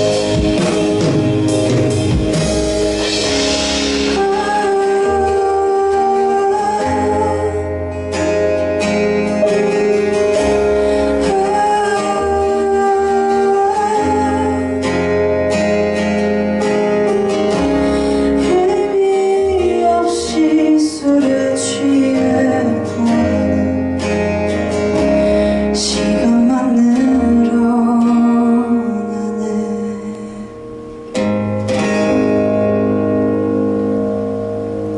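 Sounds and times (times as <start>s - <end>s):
live band with guitar and bass: 0.0s - 34.9s
woman singing: 3.8s - 8.6s, 10.4s - 15.4s, 17.9s - 24.4s, 25.0s - 30.7s.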